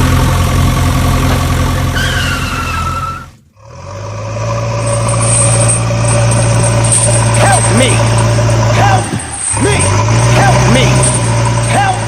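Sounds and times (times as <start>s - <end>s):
vehicle engine running: 0.0s - 12.0s
falling squeal: 1.9s - 3.4s.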